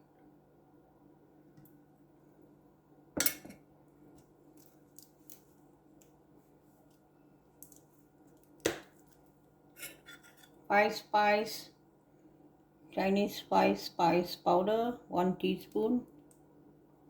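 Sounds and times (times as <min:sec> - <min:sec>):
low steady hum: 0:00.0 - 0:17.0
person speaking: 0:10.7 - 0:11.7, 0:12.9 - 0:16.1.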